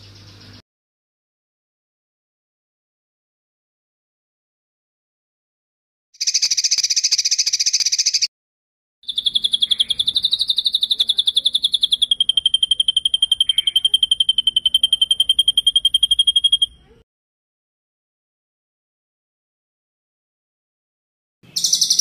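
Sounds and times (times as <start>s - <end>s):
bird trilling: 6.2s - 8.3s, 9.0s - 17.0s, 21.5s - 22.0s.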